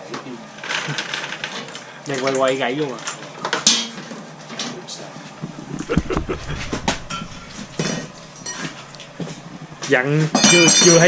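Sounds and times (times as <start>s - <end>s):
short low rumble: 5.4s - 9.8s.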